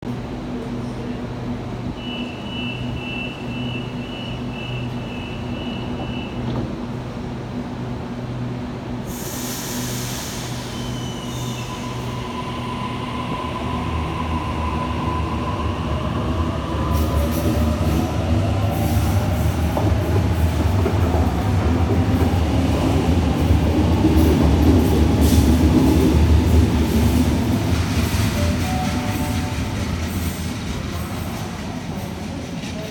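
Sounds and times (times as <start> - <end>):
wheels rumbling on rail: 0.1 - 32.9
burst of hiss: 9.1 - 11.5.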